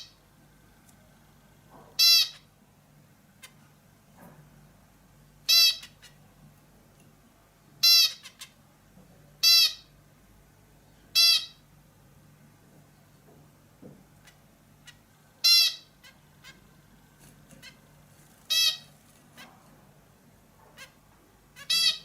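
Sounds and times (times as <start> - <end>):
bird giving harsh nasal calls: 18.5 - 18.9, 21.6 - 22.0.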